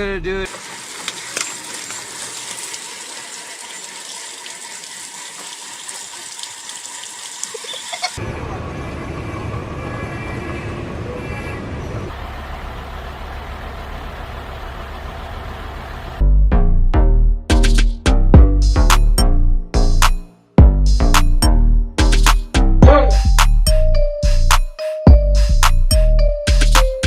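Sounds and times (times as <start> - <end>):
vehicle road noise: 8.2 - 16.2.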